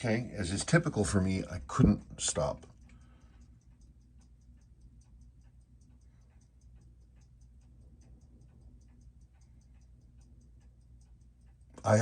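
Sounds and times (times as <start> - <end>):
watch ticking: 0.0 - 12.0.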